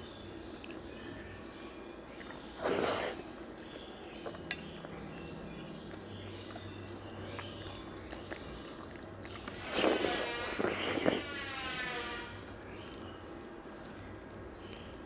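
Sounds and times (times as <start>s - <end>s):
quiet chewing with squelches: 0.0s - 11.3s, 12.5s - 15.0s
wet eating mouth sound: 2.1s - 3.2s, 4.2s - 11.3s.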